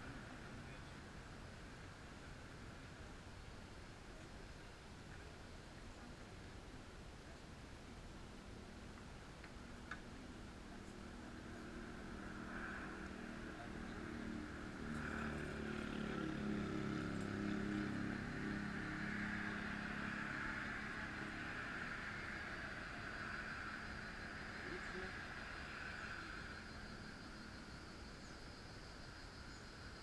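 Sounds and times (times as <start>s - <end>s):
vehicle passing by: 11.0s - 27.4s.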